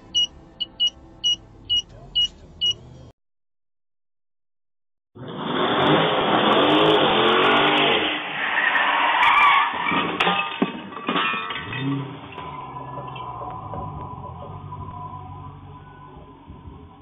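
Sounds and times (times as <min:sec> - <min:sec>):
car engine revving: 0:05.2 - 0:09.2
tire squeal: 0:05.2 - 0:10.3, 0:11.5 - 0:16.5.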